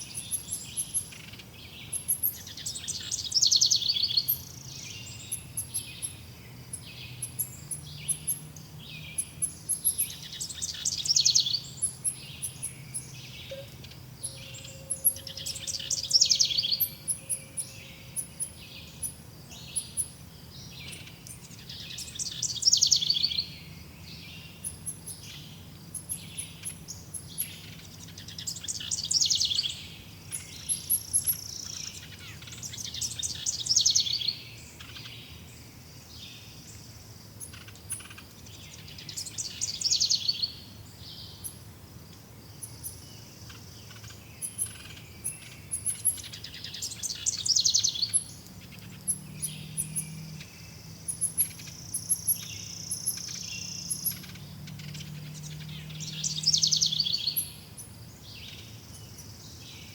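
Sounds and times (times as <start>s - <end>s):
birds chirping: 0.0s - 41.6s, 42.5s - 59.9s
bird trilling: 9.2s - 18.6s
faint high ticks: 13.5s - 14.0s, 20.9s - 21.7s, 48.1s - 50.5s.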